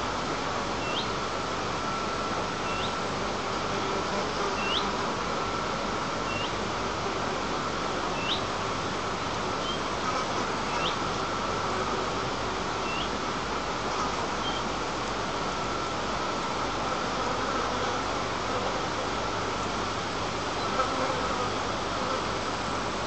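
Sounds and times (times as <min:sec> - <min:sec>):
steady background hiss: 0:00.0 - 0:23.0
bird chirping: 0:00.8 - 0:01.1, 0:02.6 - 0:03.0, 0:12.8 - 0:13.1.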